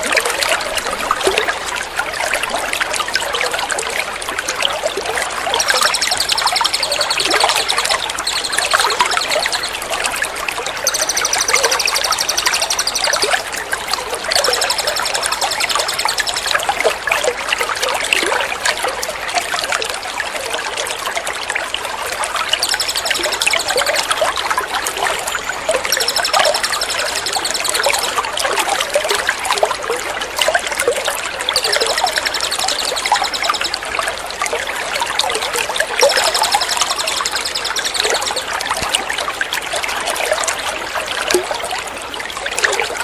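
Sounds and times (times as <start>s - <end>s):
water trickling: 0.0s - 43.0s
trilling songbird call: 5.4s - 10.2s, 10.8s - 13.6s, 14.2s - 16.8s, 22.4s - 28.3s, 31.5s - 33.8s, 36.0s - 38.6s.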